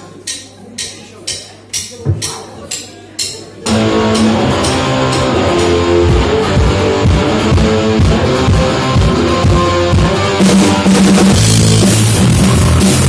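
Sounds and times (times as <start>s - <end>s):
bass guitar: 3.7s - 13.0s
drums: 3.7s - 13.0s
electric guitar: 3.7s - 13.0s.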